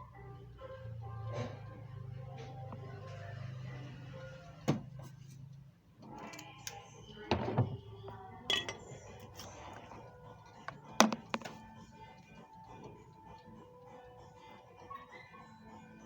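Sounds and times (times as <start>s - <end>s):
hard objects clinking: 8.5s - 9.9s.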